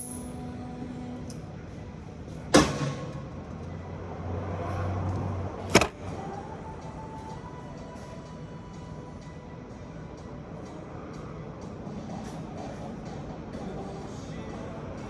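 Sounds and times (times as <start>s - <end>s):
sharp knocks: 5.7s - 5.9s.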